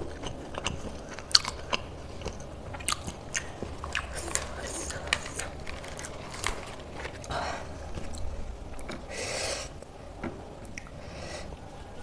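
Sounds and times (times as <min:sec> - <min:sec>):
person chewing food: 0:00.0 - 0:09.1
breathy hisses: 0:09.1 - 0:09.8, 0:11.0 - 0:11.6.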